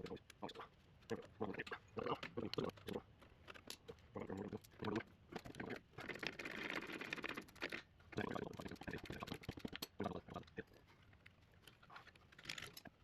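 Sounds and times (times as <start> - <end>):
hand tools tapping on metal: 0.0 - 5.8, 8.1 - 13.0.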